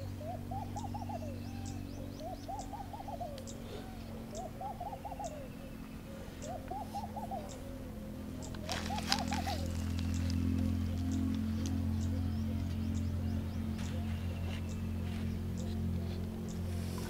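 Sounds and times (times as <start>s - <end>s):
bird hooting calls: 0.0s - 17.0s
steady low hum: 0.0s - 17.0s.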